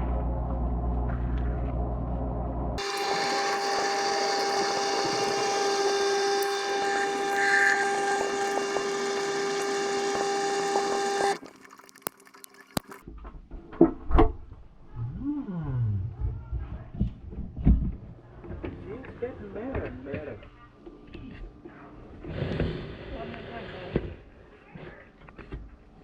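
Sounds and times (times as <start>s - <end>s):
dishwasher running: 2.8s - 11.4s.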